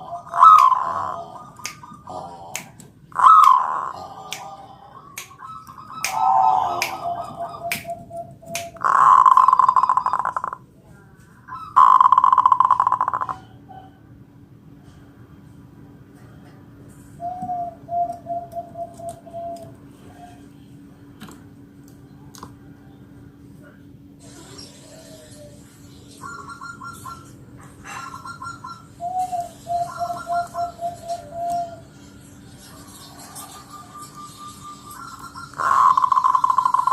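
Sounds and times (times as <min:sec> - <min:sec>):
dove cooing: 0:00.0 - 0:10.6, 0:11.6 - 0:14.0, 0:17.2 - 0:20.4, 0:26.2 - 0:32.1, 0:32.8 - 0:36.9.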